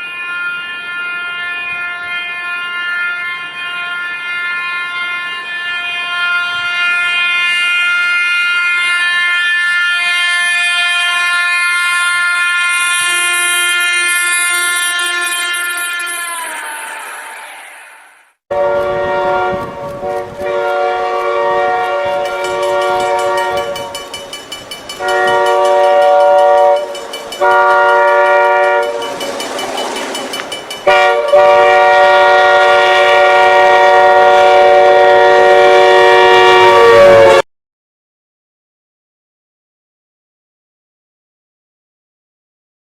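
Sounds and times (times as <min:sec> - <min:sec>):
train horn blasts: 0:00.0 - 0:16.8, 0:18.5 - 0:24.3, 0:25.0 - 0:29.3, 0:30.8 - 0:37.4.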